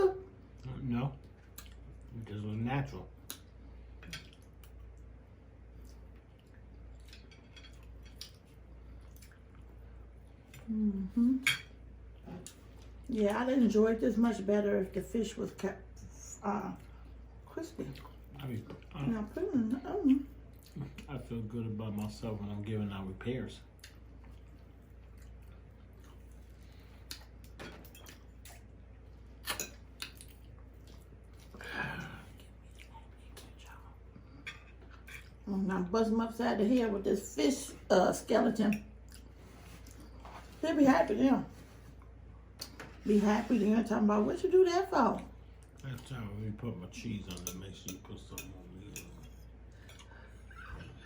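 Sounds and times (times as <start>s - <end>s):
low steady hum: 0.0s - 51.0s
wet chewing and lip-smacking: 1.2s - 2.1s, 3.2s - 9.8s, 20.1s - 21.1s, 23.7s - 31.6s, 32.3s - 35.4s, 38.9s - 40.3s.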